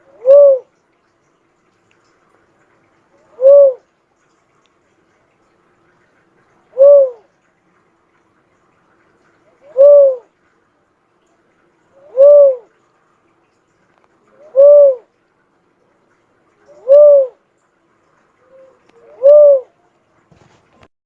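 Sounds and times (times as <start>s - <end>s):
cuckoo-dove cooing: 0.0s - 0.8s, 3.2s - 3.9s, 6.7s - 7.3s, 9.5s - 10.3s, 12.0s - 12.8s, 14.3s - 15.1s, 16.6s - 17.4s, 18.4s - 20.0s.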